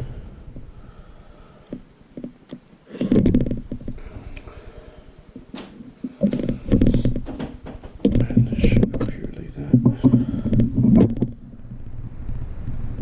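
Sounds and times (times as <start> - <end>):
low rough rubbing: 5.8 - 13.0.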